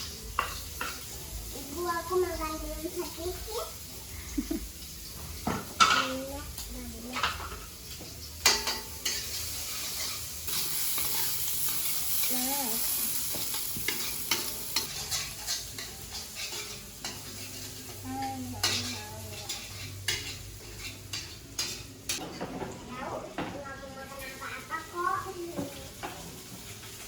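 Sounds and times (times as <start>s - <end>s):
food sizzling in a pan: 0.0s - 27.0s
spatula scraping a pan: 8.4s - 22.4s.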